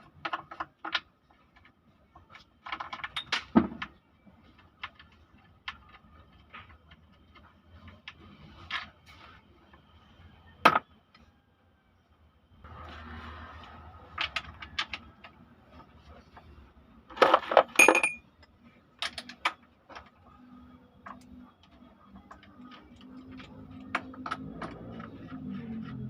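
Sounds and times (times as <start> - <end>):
metal tools clinking: 17.5 - 18.2.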